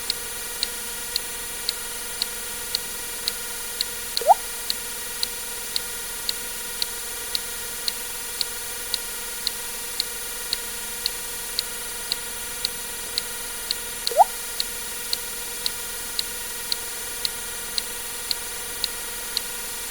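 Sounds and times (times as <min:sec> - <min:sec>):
steady ticking: 0:04.2 - 0:04.4
water drip plink: 0:04.2 - 0:04.4, 0:14.1 - 0:14.4.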